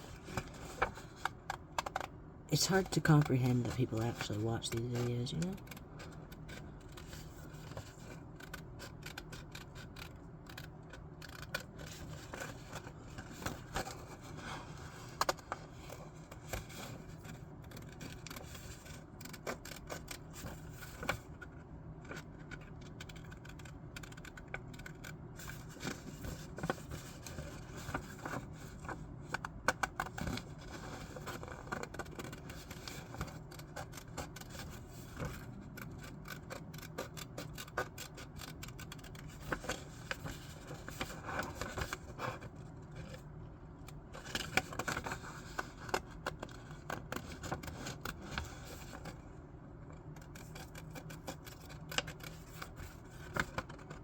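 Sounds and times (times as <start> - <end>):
scissors cutting paper: 1.5 - 14.5, 22.8 - 42.5, 50.2 - 54.0.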